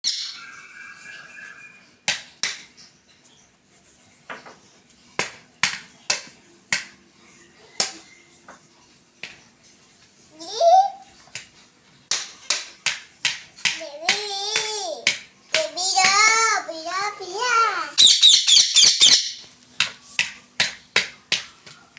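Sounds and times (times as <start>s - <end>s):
parrot call rising in pitch: 0.1s - 2.0s.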